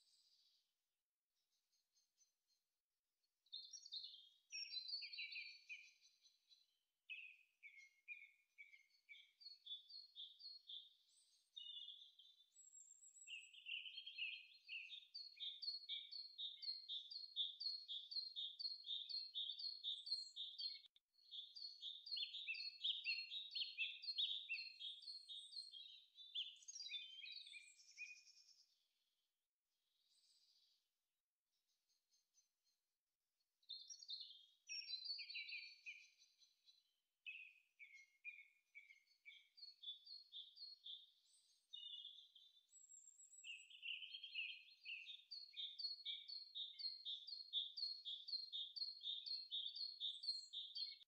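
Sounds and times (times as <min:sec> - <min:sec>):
songbirds chirping and singing: 0:03.5 - 0:28.7, 0:33.7 - 0:51.0.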